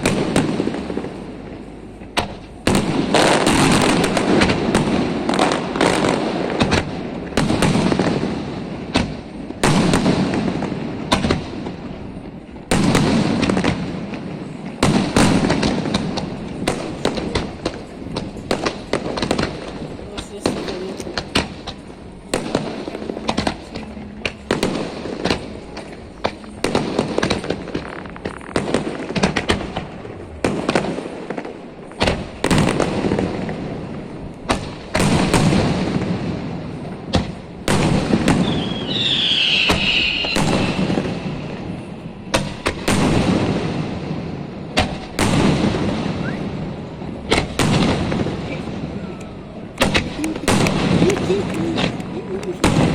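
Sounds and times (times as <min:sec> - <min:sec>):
fireworks bangs: 0:00.0 - 0:52.9
fireworks crackling: 0:00.0 - 0:52.9
high firework whistle: 0:38.3 - 0:41.1, 0:46.0 - 0:46.7.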